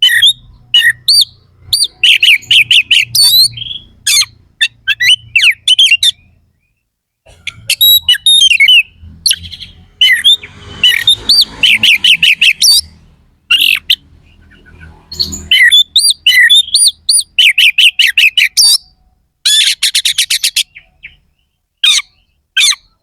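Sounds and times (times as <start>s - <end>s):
bird singing whistles and chatter: 0.0s - 6.3s, 7.5s - 21.2s.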